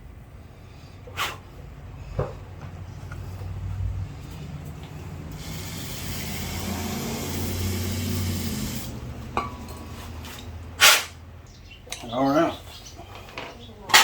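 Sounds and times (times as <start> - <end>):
pressurised spray hissing: 5.3 - 9.2.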